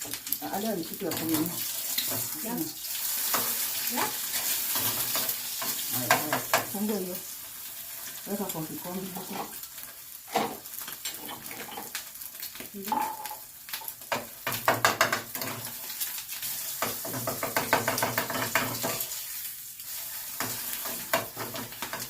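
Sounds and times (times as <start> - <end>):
egg sizzling in a pan: 0.0 - 22.0
utensil scraping a pan: 1.1 - 6.7, 7.9 - 9.6, 10.3 - 12.0, 14.6 - 22.0.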